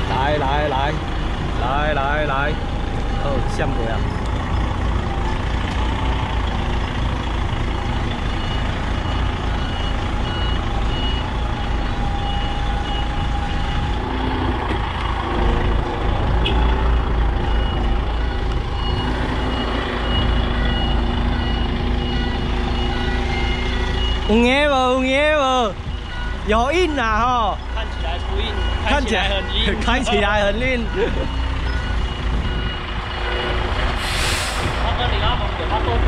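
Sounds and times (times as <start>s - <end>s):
diesel truck engine rumbling: 0.0s - 36.0s
reversing alarm beeping: 7.7s - 14.2s, 17.4s - 35.4s.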